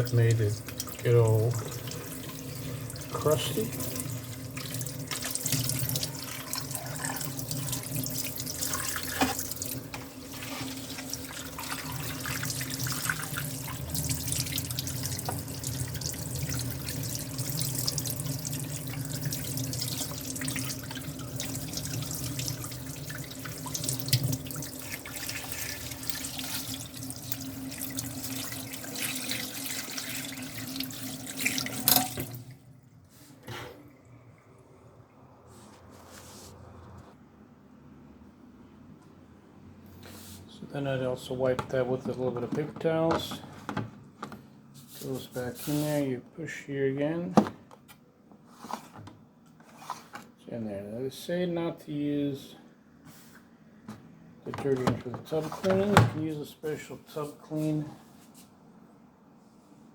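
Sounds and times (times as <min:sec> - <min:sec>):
tap running into a sink: 0:08.6 - 0:32.4.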